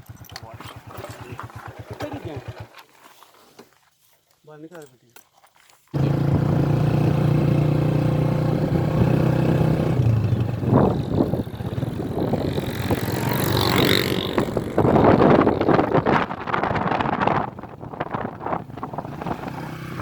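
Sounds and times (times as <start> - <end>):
vehicle engine humming: 6.0 - 20.0
wind noise on microphone: 8.9 - 20.0.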